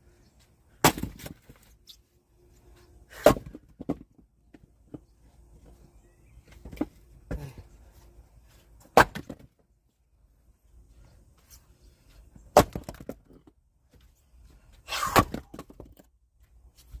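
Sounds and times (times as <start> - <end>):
axe striking firewood: 0.8 - 1.6, 3.1 - 4.0, 8.8 - 9.6, 12.5 - 13.4, 14.9 - 16.1.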